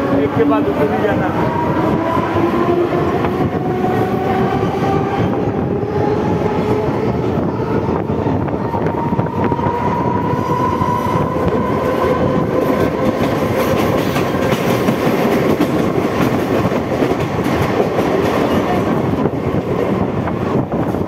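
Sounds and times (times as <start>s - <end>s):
train wheels rumbling on rails: 0.0s - 21.0s
clickety-clack of rail joints: 11.3s - 21.0s.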